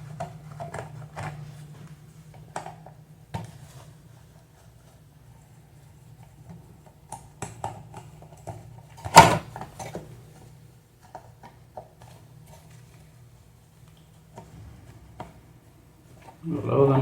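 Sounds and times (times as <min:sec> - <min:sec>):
steady low hum: 0:12.2 - 0:17.0.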